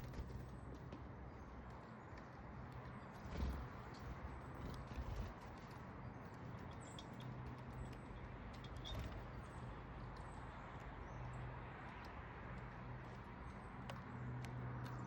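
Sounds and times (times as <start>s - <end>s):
light taps and clicks: 11.7s - 15.0s.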